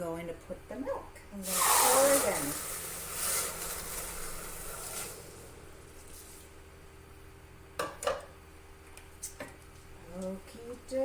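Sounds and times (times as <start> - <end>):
milk pouring into pot: 1.4 - 6.5.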